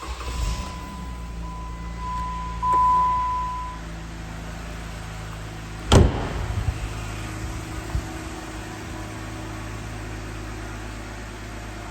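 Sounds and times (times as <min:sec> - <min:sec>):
car engine starting and idling: 0:00.0 - 0:11.9
high electronic warning tone: 0:00.1 - 0:03.9.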